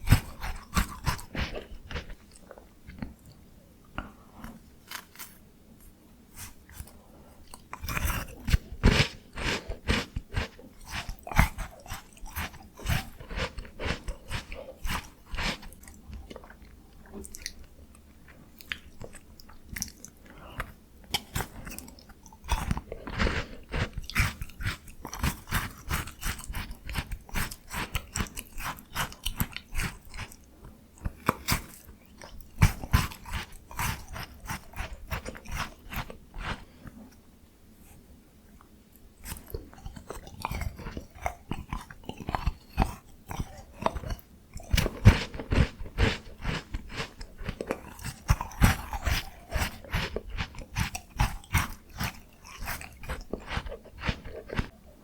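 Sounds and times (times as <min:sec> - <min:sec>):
crunching frozen ice cream: 0:00.0 - 0:03.2, 0:04.8 - 0:05.4, 0:06.4 - 0:17.7, 0:18.6 - 0:36.9, 0:39.2 - 0:54.9
chewing: 0:00.0 - 0:03.4, 0:06.4 - 0:37.2, 0:38.6 - 0:55.0.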